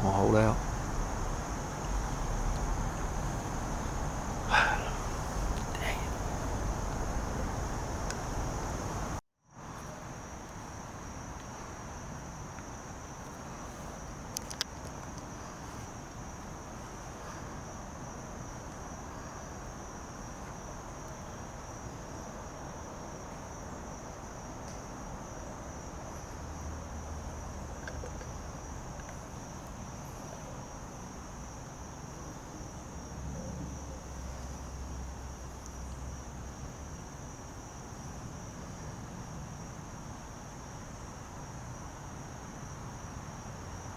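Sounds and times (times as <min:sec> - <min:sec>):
faint low rumble: 0:00.0 - 0:09.2
insect chorus: 0:00.0 - 0:43.9
faint clicks: 0:14.3 - 0:15.3.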